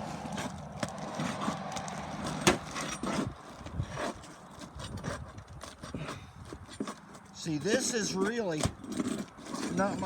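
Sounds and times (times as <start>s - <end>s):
tool knocking and scraping shingles: 0.0s - 10.0s.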